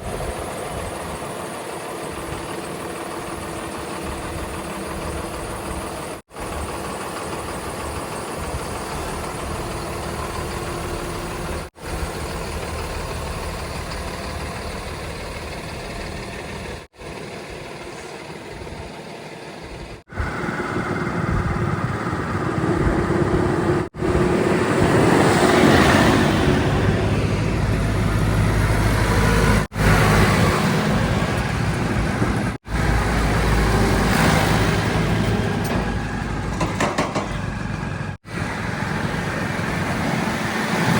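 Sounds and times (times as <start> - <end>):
heavy diesel engines running: 0.0 - 40.9
engine revving: 20.2 - 36.5.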